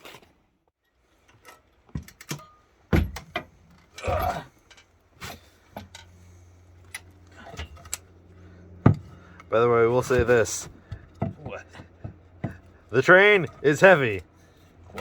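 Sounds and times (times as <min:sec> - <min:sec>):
clinks and knocks of handling: 0:01.2 - 0:15.0
steady low hum: 0:02.7 - 0:15.0.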